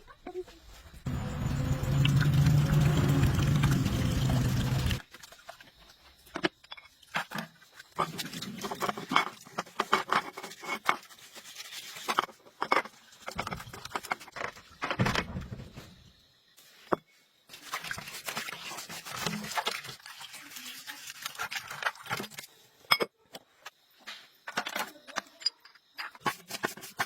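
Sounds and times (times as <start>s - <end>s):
hand tools and metal parts clinking: 21.8s - 27.0s.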